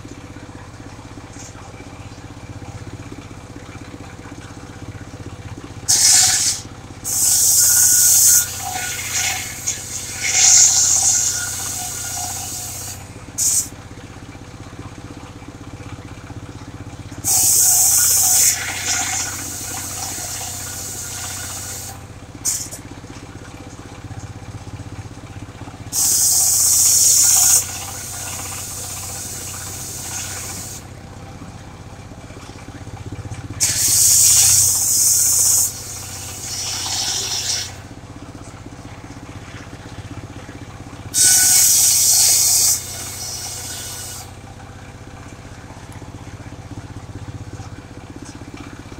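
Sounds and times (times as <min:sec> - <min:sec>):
sawmill engine running: 0:00.0 - 0:48.9
saw blade cutting log: 0:05.9 - 0:13.7, 0:17.3 - 0:22.8, 0:26.0 - 0:30.8, 0:33.6 - 0:37.8, 0:41.2 - 0:44.3.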